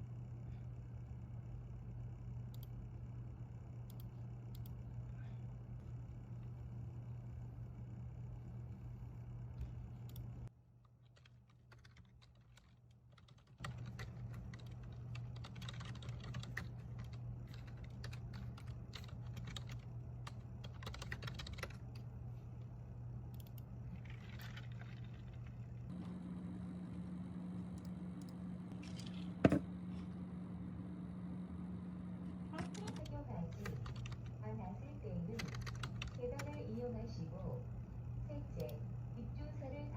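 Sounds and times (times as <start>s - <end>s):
low electrical hum: 0.0s - 39.9s
keyboard typing: 11.0s - 22.1s, 23.3s - 25.7s, 32.5s - 34.4s, 35.3s - 36.6s.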